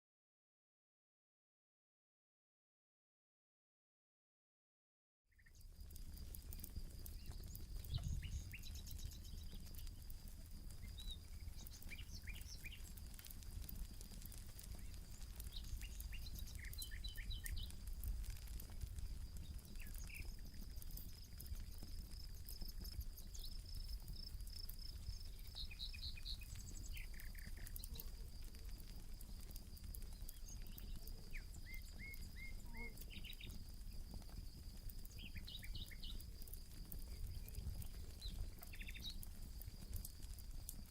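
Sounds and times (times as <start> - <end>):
campfire crackling: 5.3 - 40.9
birds chirping: 5.4 - 10.1, 10.7 - 28.8, 29.5 - 36.3, 36.9 - 39.3.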